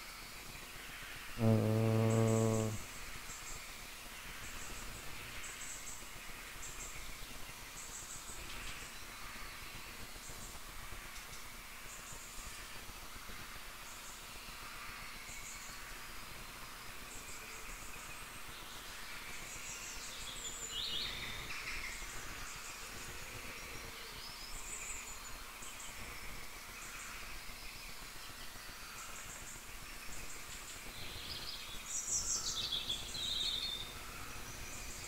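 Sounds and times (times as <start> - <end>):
steady low hiss: 0.0 - 35.0
faint birds chirping: 0.4 - 2.9.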